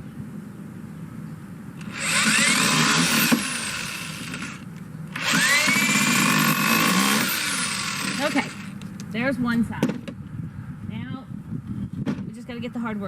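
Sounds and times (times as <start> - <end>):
power drill driving screws: 1.8 - 8.9.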